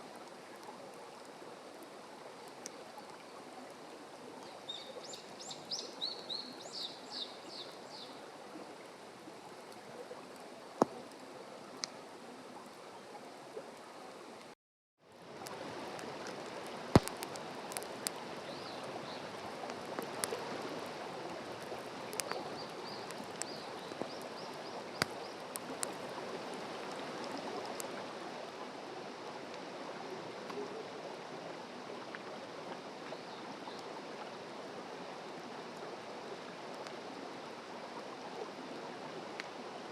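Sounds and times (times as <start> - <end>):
flowing water: 0.0 - 39.9
campfire popping and crackling: 15.2 - 27.9.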